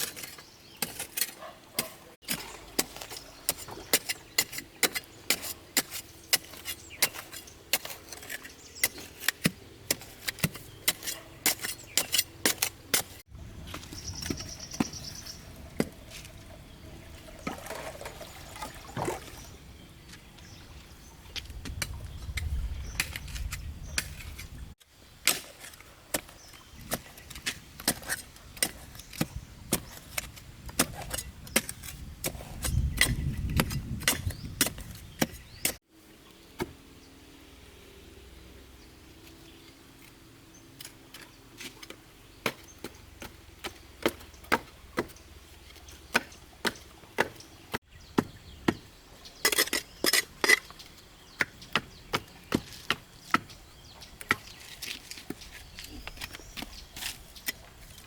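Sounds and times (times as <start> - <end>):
hand tool chopping: 41.9 - 45.2, 46.1 - 48.8.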